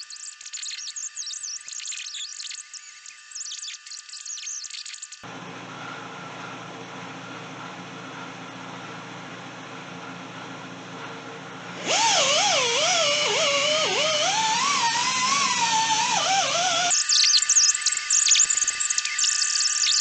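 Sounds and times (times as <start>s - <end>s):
angle grinder grinding metal: 10.9s - 19.2s.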